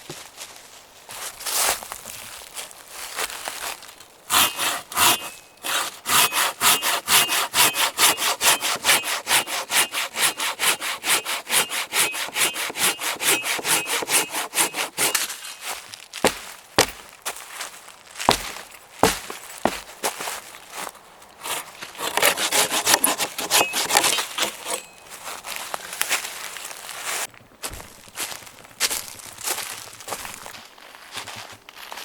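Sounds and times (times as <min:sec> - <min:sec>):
hand saw cutting wood: 0:04.3 - 0:15.4, 0:21.4 - 0:25.0.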